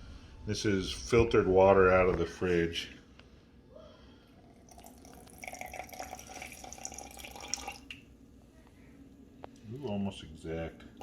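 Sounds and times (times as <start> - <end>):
water pouring into a bottle: 4.5 - 8.0.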